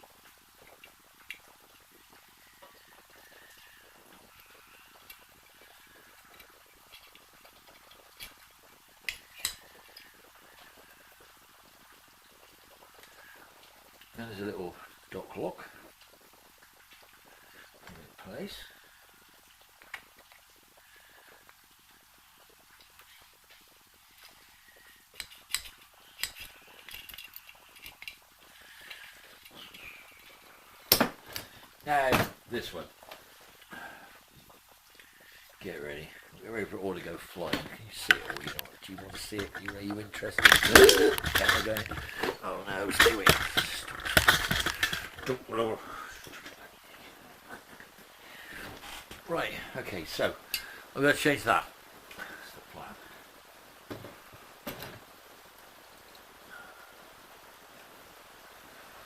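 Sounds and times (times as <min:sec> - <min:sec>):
small metal parts clinking: 0:38.0 - 0:42.1, 0:42.9 - 0:45.3.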